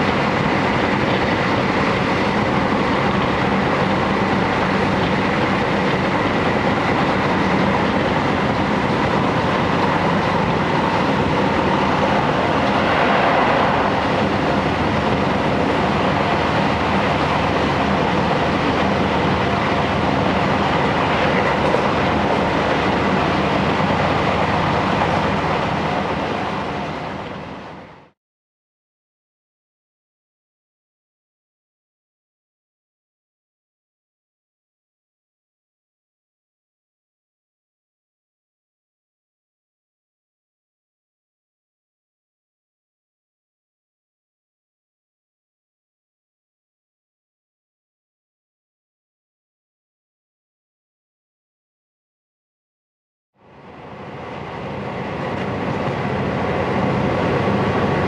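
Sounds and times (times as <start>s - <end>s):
train wheels rumbling: 0.0s - 28.1s.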